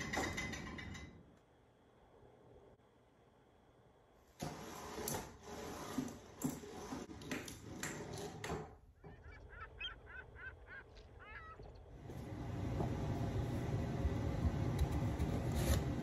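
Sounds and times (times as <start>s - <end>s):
bird calling repeated notes: 9.0s - 11.9s.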